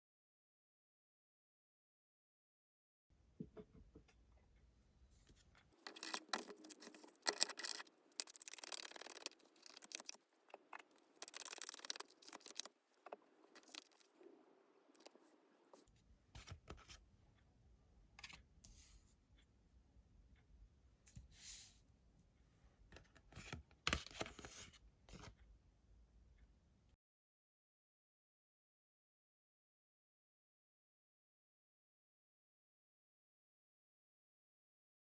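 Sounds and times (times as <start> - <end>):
cards being shuffled: 5.8 - 10.2, 10.8 - 12.7.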